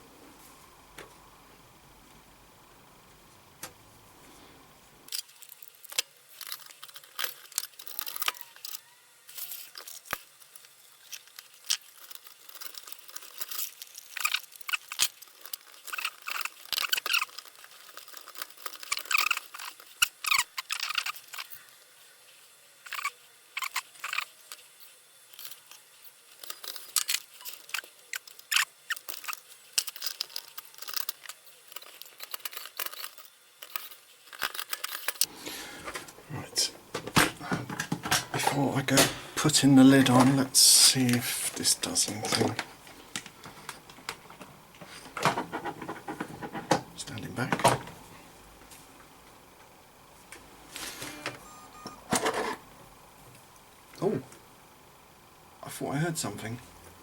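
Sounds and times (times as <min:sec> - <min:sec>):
small parts clicking and tapping: 0:05.1 - 0:21.6, 0:22.8 - 0:35.3.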